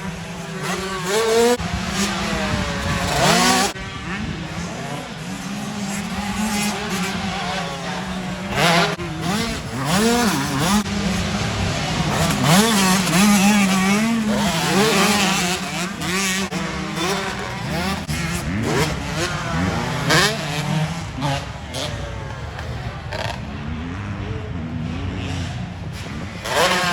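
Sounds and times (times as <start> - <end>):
motocross bikes revving: 0.0 - 26.9.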